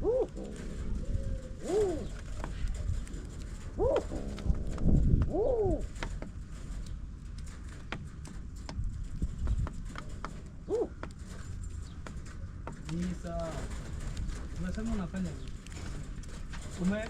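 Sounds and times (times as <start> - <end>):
bird calls: 0.0 - 3.1, 3.7 - 4.6, 5.2 - 6.1, 10.6 - 12.2
birds pecking at feed: 0.0 - 17.0.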